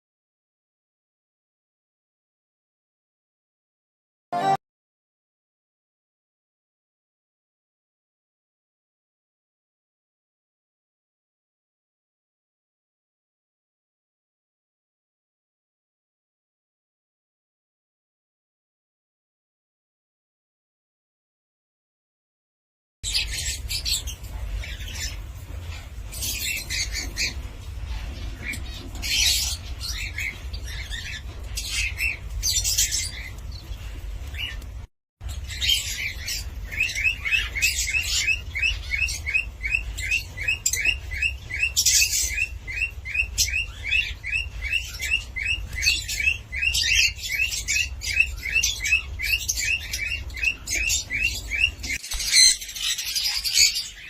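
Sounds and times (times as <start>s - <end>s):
cockatiel chirping and calling: 23.1s - 33.4s, 35.5s - 54.0s.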